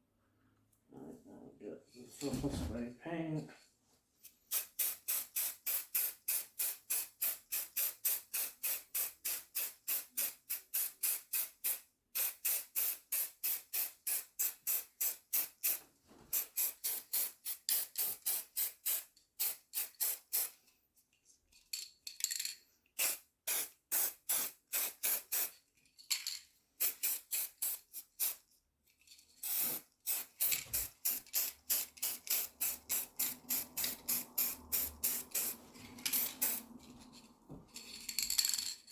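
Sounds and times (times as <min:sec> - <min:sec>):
spray paint can rattling: 0:23.0 - 0:28.4, 0:29.4 - 0:36.6, 0:37.7 - 0:38.9.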